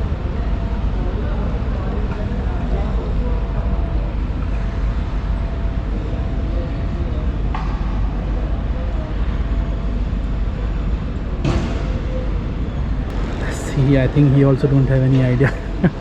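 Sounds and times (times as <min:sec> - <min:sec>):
faint hum: 0:00.0 - 0:16.0
low rumble: 0:12.9 - 0:16.0.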